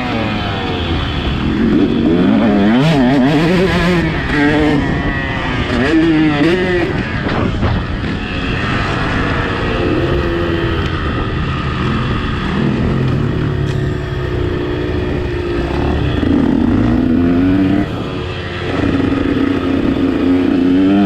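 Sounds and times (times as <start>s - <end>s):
motocross bike engine revving: 0.0s - 21.0s.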